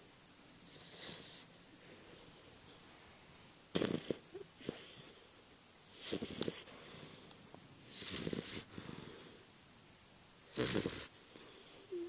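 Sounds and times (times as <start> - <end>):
puppy snoring: 0.6 - 1.5, 3.7 - 5.3, 5.9 - 7.2, 7.8 - 9.4, 10.4 - 12.0
quiet breathing: 0.6 - 9.6, 10.6 - 12.0.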